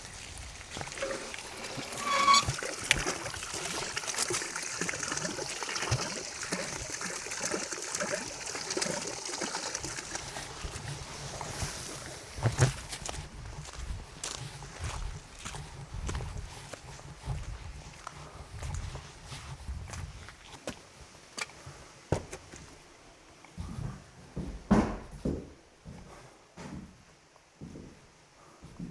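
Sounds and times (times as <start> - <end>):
stream water trickling: 0.0 - 16.3
high squeal: 1.0 - 2.7.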